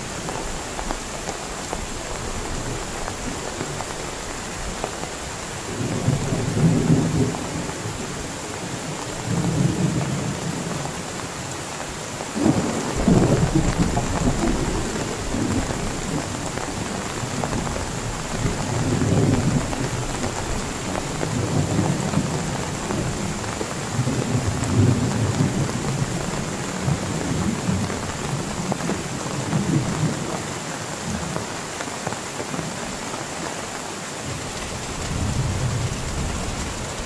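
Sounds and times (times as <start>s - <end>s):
heavy rain falling: 0.0s - 37.0s
rolls of thunder: 12.4s - 16.2s.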